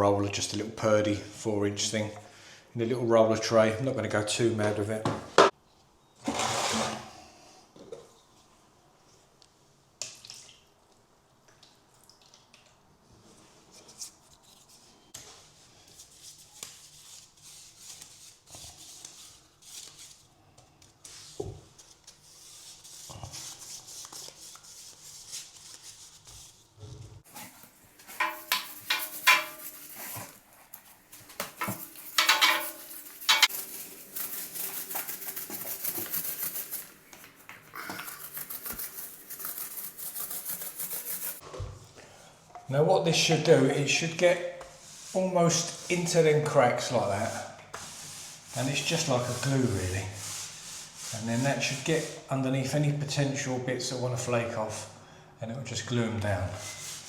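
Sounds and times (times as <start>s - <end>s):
paint roller swishing: 21.0s - 41.4s, 44.7s - 46.2s, 46.8s - 52.2s, 56.5s - 57.0s
paint tin and tray clinking: 27.3s - 30.4s, 31.2s - 36.9s.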